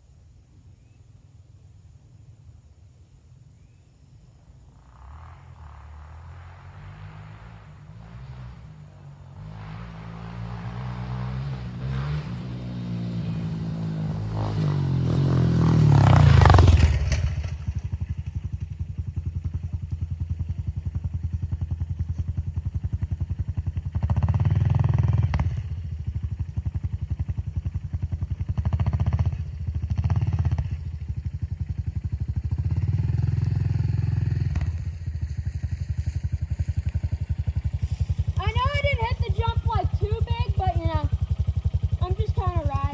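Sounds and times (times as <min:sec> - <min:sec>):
dirt bike engine revving: 0:09.4 - 0:18.2, 0:28.5 - 0:42.9.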